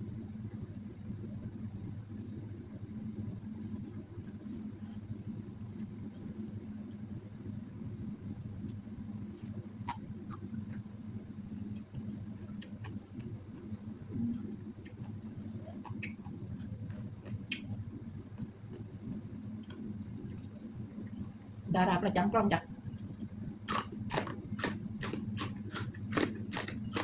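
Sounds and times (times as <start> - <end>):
steady low hum: 0.0 - 27.0
person chewing: 9.4 - 10.8, 11.5 - 20.5, 23.0 - 27.0.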